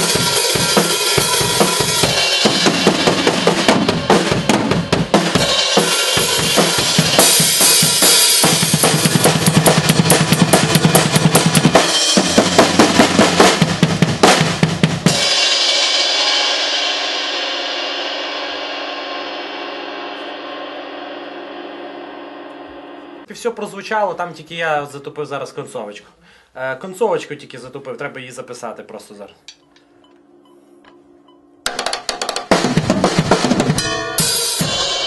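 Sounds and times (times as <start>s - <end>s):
drum kit playing: 0.0s - 23.4s, 29.5s - 35.0s
cymbal ringing: 15.1s - 23.3s, 29.4s - 32.2s, 33.6s - 35.0s.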